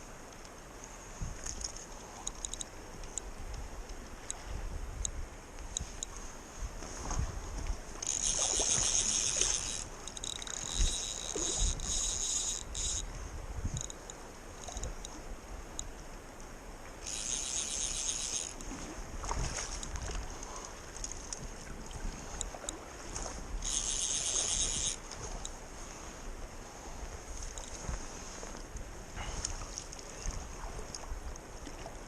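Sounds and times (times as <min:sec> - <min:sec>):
wind on microphone: 0:01.0 - 0:16.0, 0:17.0 - 0:32.0
high-pitched rasping bursts: 0:08.0 - 0:13.1, 0:23.6 - 0:25.0.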